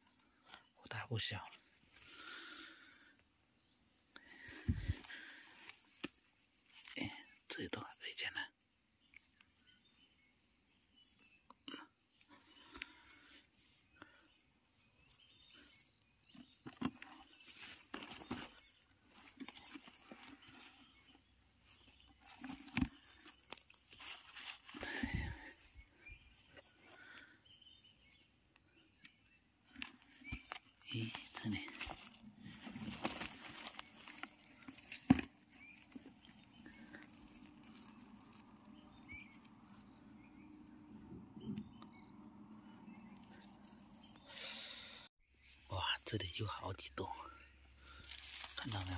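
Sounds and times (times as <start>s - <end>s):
faint rustling: 29.7s - 40.5s.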